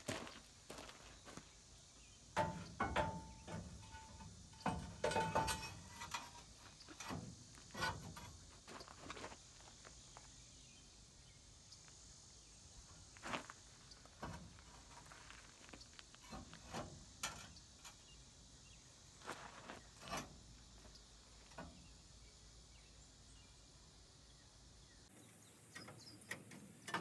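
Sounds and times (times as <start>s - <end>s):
knocks and clanks: 2.3s - 9.0s.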